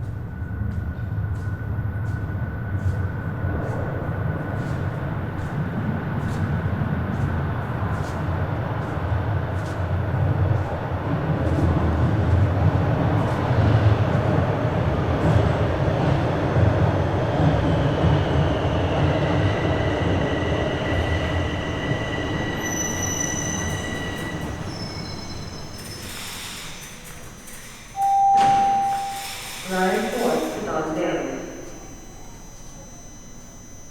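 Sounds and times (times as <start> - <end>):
subway train rumbling in tunnel: 0.0 - 33.9
steel wheels squealing: 19.6 - 33.9.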